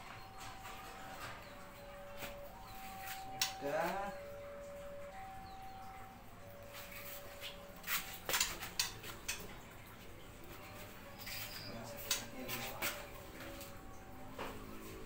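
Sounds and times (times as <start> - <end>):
clicks and knocks in wire cage: 8.2 - 9.6.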